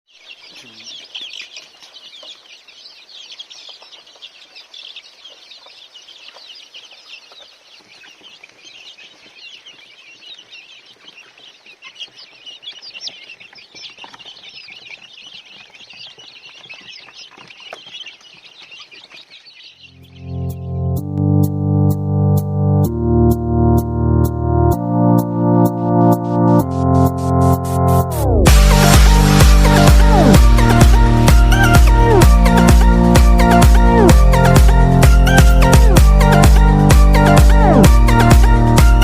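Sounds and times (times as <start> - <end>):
chicks peeping: 0.1 - 39.0
music: 20.0 - 39.0.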